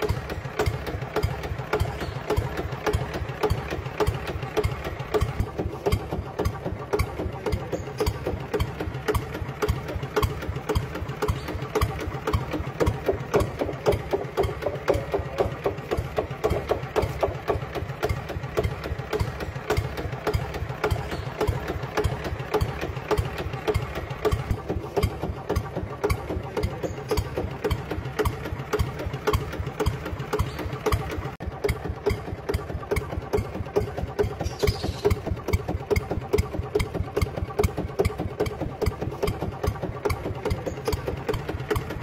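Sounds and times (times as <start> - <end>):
small tractor engine chugging: 0.0 - 42.0.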